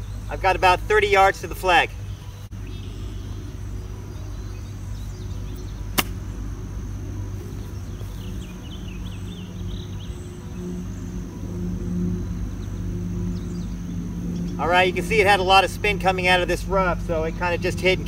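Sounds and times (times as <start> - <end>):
low outdoor hum: 0.0 - 18.0
golf club striking ball: 6.0 - 6.2.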